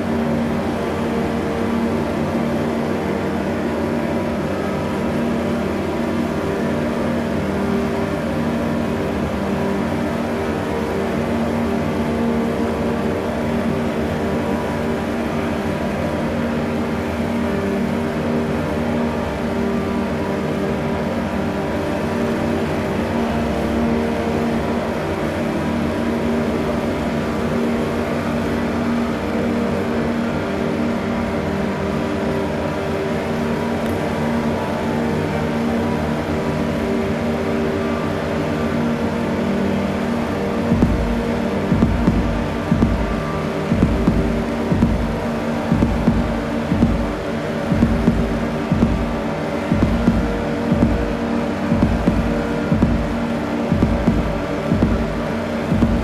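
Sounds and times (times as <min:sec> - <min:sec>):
electronic drone of low tones: 0:00.0 - 0:56.0
low rumble: 0:40.7 - 0:56.0.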